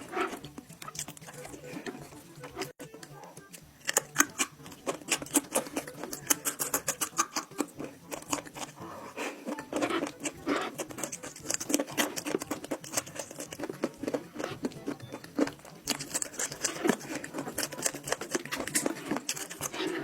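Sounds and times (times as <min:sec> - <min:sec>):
person chewing meat: 0:00.0 - 0:20.0
mouth smacking clicks: 0:03.3 - 0:08.8.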